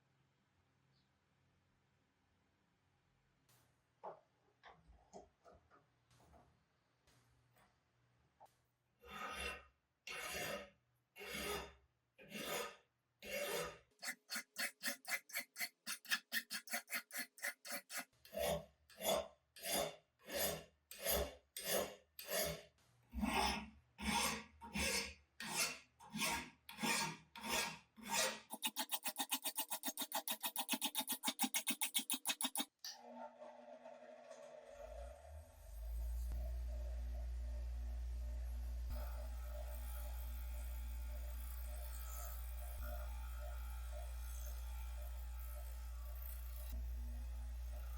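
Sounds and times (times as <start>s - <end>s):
hand file scraping metal: 9.0s - 32.8s.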